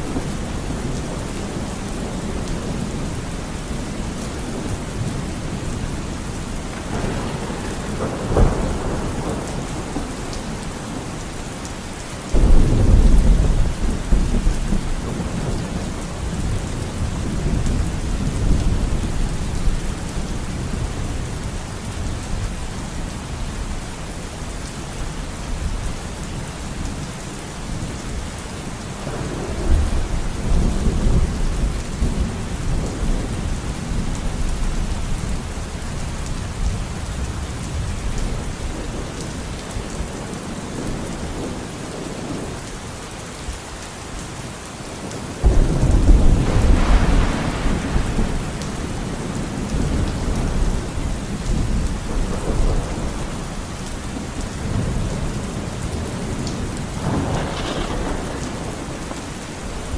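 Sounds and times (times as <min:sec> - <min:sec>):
thunder rumbling: 0:00.0 - 0:22.2, 0:29.0 - 0:42.5, 0:45.4 - 0:59.9
heavy rain falling: 0:00.0 - 0:59.9
thunder crack: 0:06.7 - 0:11.1, 0:12.4 - 0:15.5, 0:45.4 - 0:53.4, 0:57.0 - 0:59.9.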